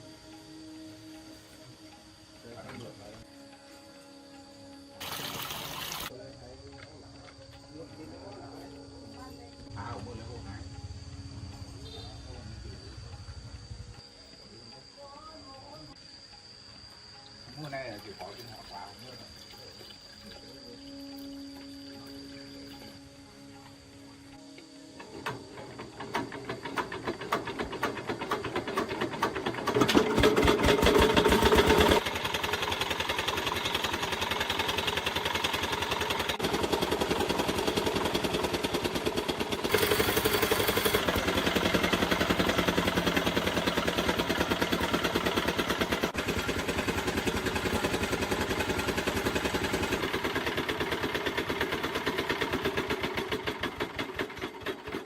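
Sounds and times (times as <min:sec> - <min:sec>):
diesel engine running: 0:25.0 - 0:55.0.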